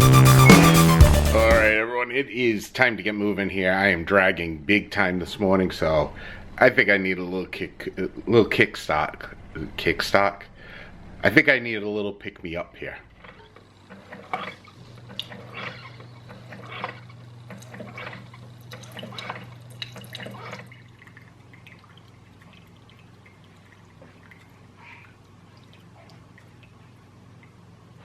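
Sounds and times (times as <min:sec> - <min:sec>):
coffee maker humming: 0:13.1 - 0:28.0
water trickling and dripping: 0:15.0 - 0:28.0.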